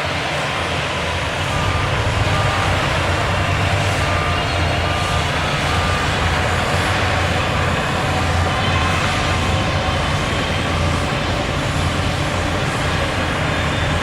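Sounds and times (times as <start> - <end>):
diesel engine running: 1.2 - 14.0
reversing alarm beeps: 1.4 - 14.0.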